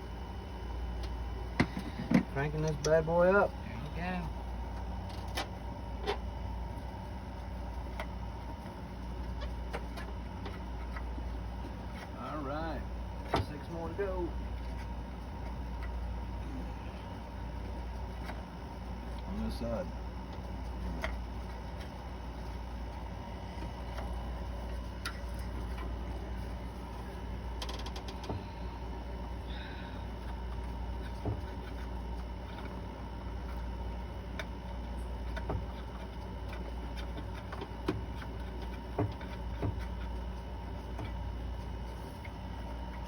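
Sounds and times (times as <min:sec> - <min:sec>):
steady low hum: 0:00.0 - 0:43.0
metal parts clicking and tapping: 0:27.6 - 0:28.3.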